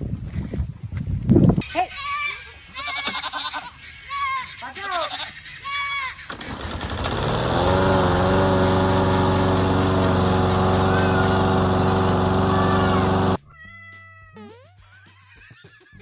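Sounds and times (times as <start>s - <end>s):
motor humming: 6.9s - 13.4s.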